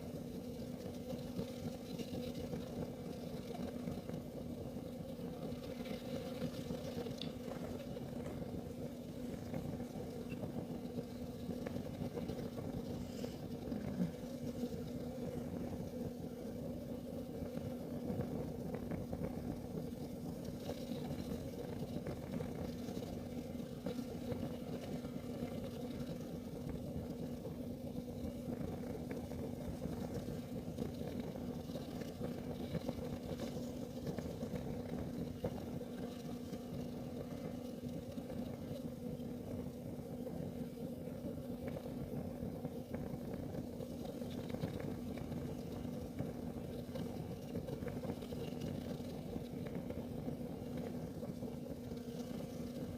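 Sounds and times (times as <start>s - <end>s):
heater burning with low hum: 0.0s - 52.9s
faint ticks: 5.6s - 8.4s.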